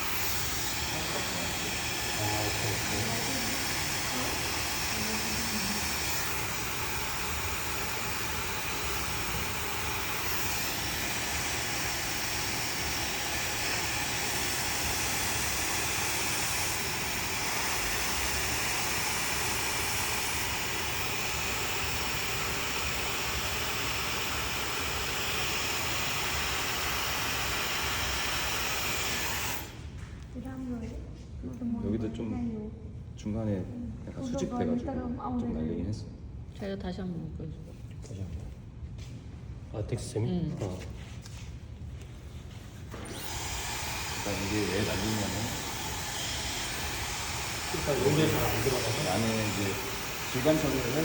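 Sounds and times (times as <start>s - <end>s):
hair dryer humming: 0.0s - 30.0s, 42.8s - 51.0s.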